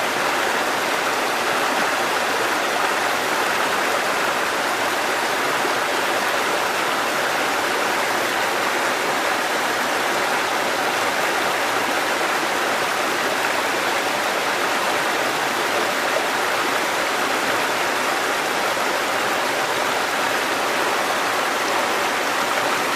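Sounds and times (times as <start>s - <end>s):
stream rushing over rocks: 0.0s - 22.9s.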